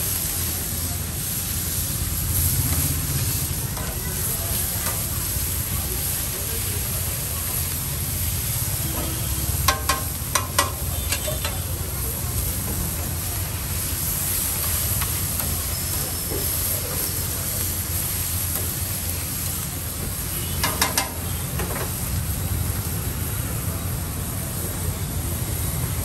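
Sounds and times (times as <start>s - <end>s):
vegetables sizzling on a griddle: 0.0s - 26.0s
metal spatula clacking on griddle: 9.6s - 11.7s, 20.6s - 21.9s.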